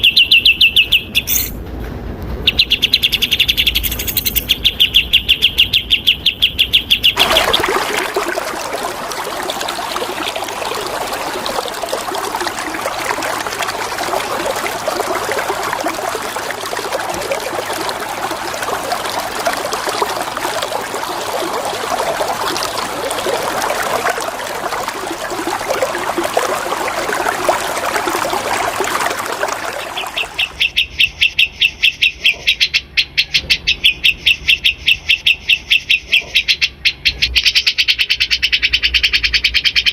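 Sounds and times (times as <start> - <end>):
bird singing repeated high notes: 0.0 - 1.6, 2.5 - 7.2
running water: 7.2 - 30.7.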